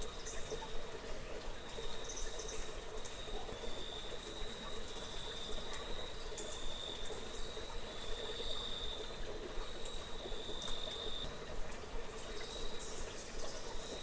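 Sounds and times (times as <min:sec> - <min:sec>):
faint ticks: 0:09.7 - 0:14.0.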